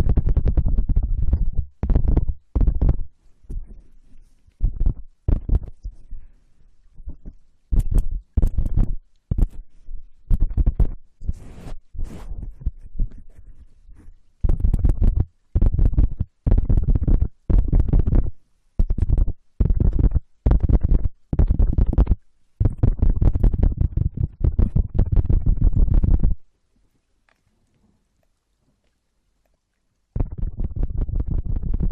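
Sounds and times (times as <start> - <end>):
scratching on microphone: 0.0 - 6.3, 6.9 - 26.4, 30.2 - 31.9
deep rumbling thuds: 4.6 - 5.8.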